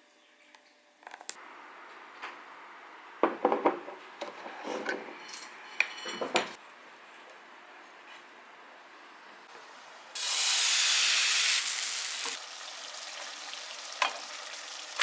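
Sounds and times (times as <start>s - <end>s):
dishes and cutlery clinking: 4.6s - 6.6s.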